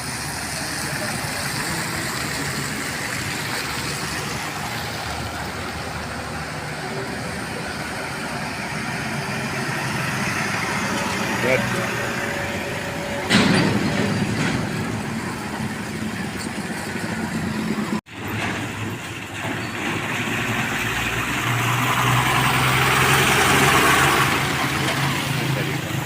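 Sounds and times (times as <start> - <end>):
truck engine low hum: 0.0 - 26.0
truck engines running: 0.0 - 26.0.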